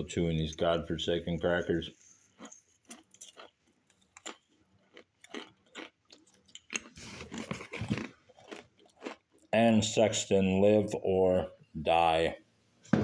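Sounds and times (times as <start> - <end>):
person chewing crackers: 2.2 - 9.6.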